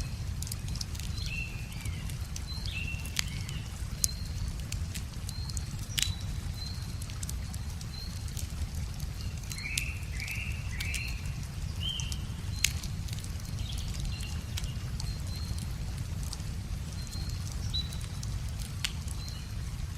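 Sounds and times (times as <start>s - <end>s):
birds chirping: 0.0s - 15.7s
wood fire crackling and popping: 0.0s - 19.9s.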